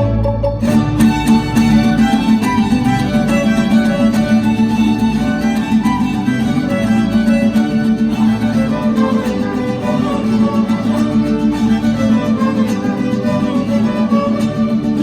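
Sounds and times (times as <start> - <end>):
bass: 0.0 - 6.0
guitars: 0.0 - 15.0
harp: 0.0 - 15.0
violins playing melody: 0.0 - 15.0.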